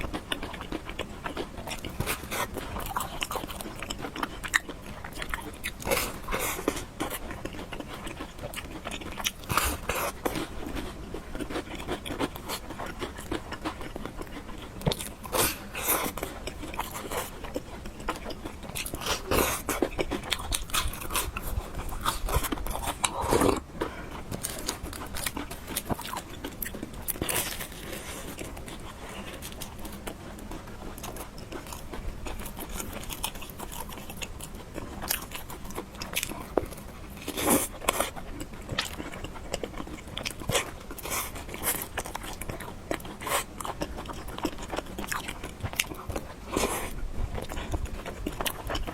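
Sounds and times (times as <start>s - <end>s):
chewing and biting food: 0.0s - 48.9s.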